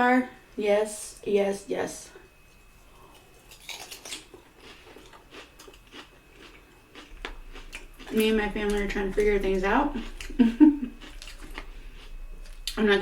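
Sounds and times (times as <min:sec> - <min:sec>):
person chewing food: 0:02.8 - 0:12.8.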